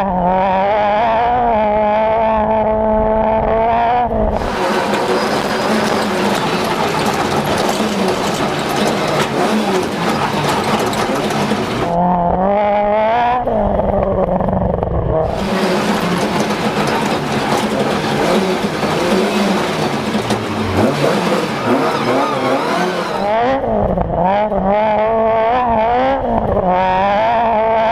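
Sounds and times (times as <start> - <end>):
rally car engine revving: 0.0 - 27.9
steady rush of noise: 4.3 - 12.0, 14.5 - 23.3.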